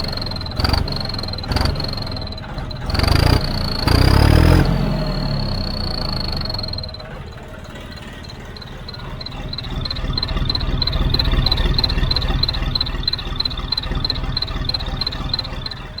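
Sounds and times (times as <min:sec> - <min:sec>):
diesel tractor engine running: 0:00.0 - 0:16.0
pulsing turbo whistle: 0:00.0 - 0:16.0.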